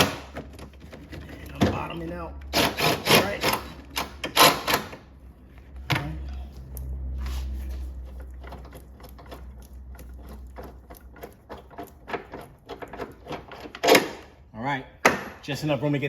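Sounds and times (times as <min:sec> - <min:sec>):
power ratchet motor hum: 0:02.5 - 0:05.0.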